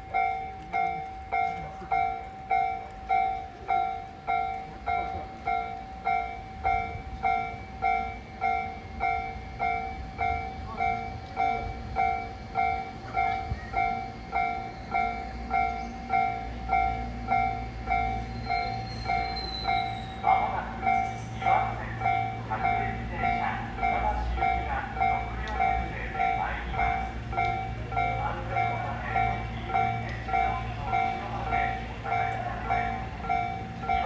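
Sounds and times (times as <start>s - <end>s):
train low rumble: 0.0s - 34.0s
level crossing bell ringing: 20.8s - 34.0s.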